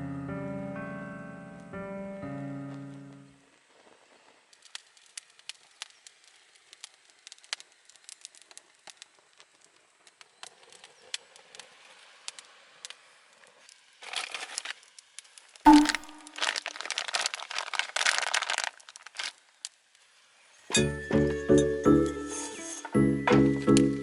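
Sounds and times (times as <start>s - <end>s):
campfire crackling and popping: 3.7s - 20.2s.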